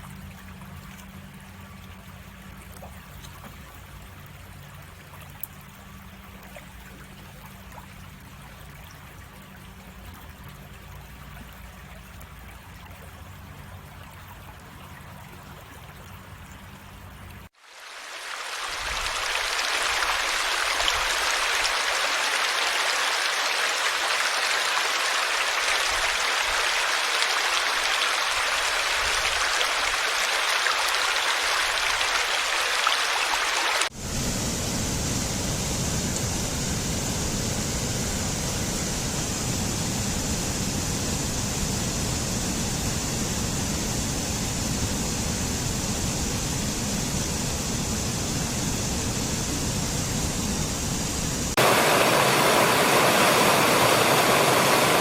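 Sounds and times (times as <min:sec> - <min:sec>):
stream flowing: 0:00.0 - 0:55.0
deep rush of water: 0:17.5 - 0:55.0.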